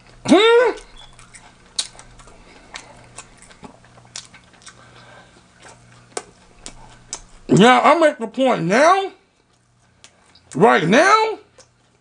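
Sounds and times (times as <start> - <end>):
chewing crunches and mouth clicks: 0.0 - 7.5, 9.4 - 10.7, 11.5 - 12.0
faint low hum: 0.0 - 12.0.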